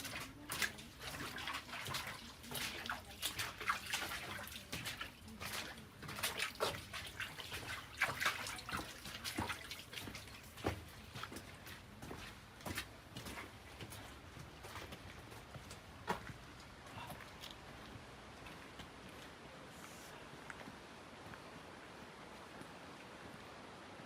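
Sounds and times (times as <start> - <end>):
water trickling and dripping: 0.0 - 19.3
footsteps crunching on rocky trail: 8.7 - 23.4.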